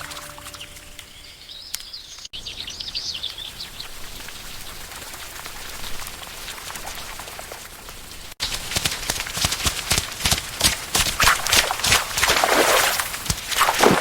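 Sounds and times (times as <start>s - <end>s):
birds chirping: 0.0s - 4.6s
steady rain falling: 3.0s - 13.6s.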